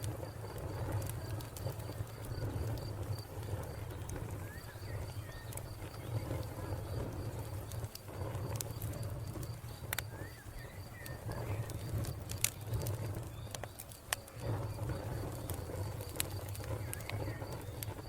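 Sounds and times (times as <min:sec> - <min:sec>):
cricket chirping: 0:00.0 - 0:18.0
wood fire crackling: 0:00.0 - 0:18.0.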